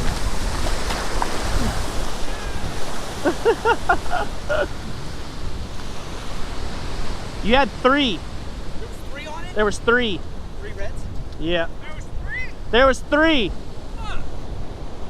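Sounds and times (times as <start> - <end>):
ocean surf washing in: 0.0 - 15.0
wind rumbling on microphone: 0.0 - 15.0.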